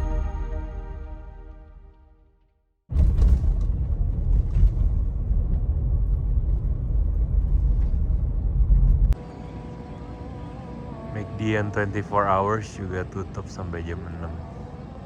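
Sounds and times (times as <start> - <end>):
loud low rumbling: 2.9 - 9.2.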